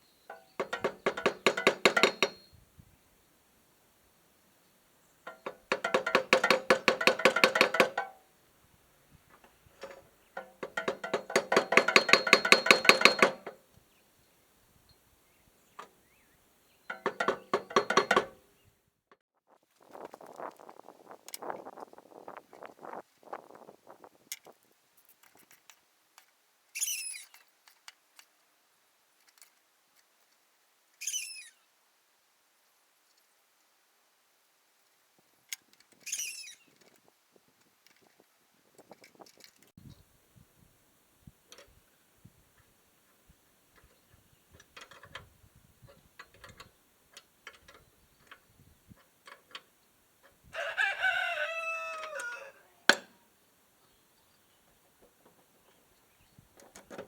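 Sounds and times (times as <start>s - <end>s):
rooster crowing: 50.5s - 52.8s.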